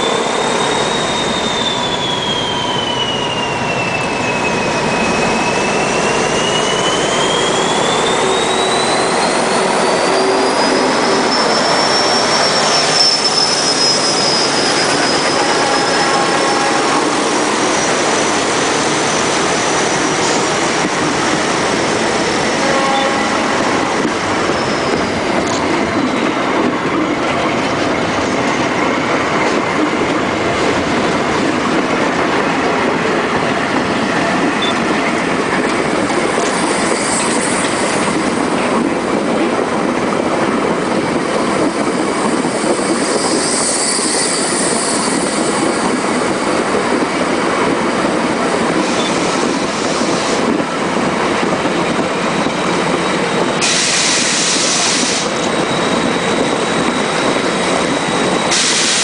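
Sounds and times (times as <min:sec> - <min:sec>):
high wheel squeals: 0:00.0 - 0:26.3, 0:36.4 - 0:38.2, 0:41.5 - 0:46.3, 0:52.2 - 0:59.0
train wheels rumbling and clattering: 0:00.0 - 0:59.0.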